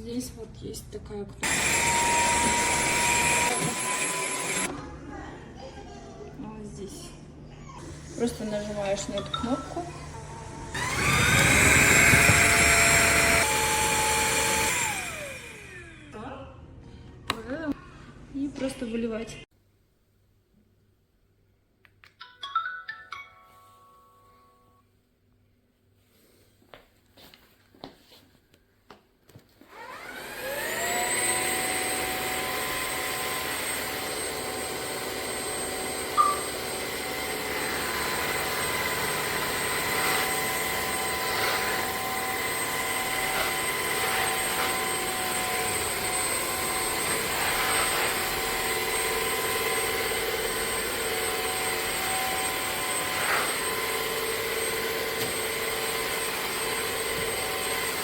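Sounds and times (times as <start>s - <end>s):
wet-dry vacuum motor whine: 1.4s - 4.7s, 10.2s - 16.1s, 29.7s - 58.0s.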